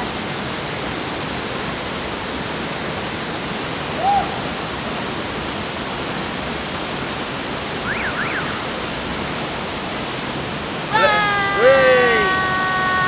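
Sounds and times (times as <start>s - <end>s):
rising-and-falling call: 7.8s - 9.0s, 10.9s - 13.0s
waterfall roaring: 10.9s - 13.0s.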